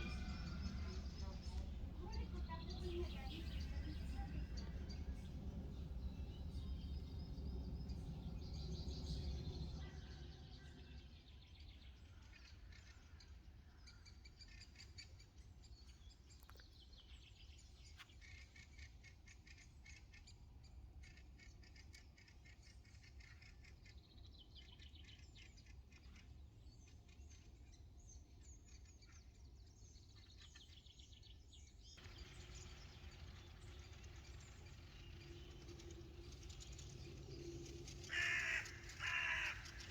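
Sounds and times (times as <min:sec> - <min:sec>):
low rumble: 0:00.0 - 0:10.8, 0:32.0 - 0:39.9
small birds chirping and trilling: 0:00.0 - 0:39.9.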